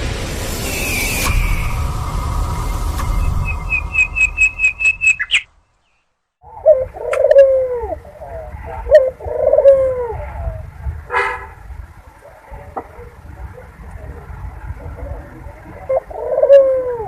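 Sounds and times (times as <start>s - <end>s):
short high chirps: 0.6s - 6.0s
dove cooing: 6.5s - 11.6s, 15.7s - 17.0s.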